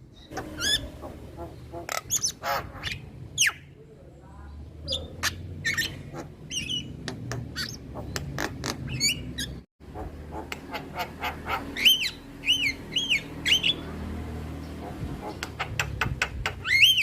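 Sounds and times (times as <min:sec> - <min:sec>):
steady low hum: 0:00.0 - 0:04.5
bird scratchy calls and whistles: 0:04.9 - 0:09.6, 0:11.2 - 0:13.9, 0:15.2 - 0:17.0.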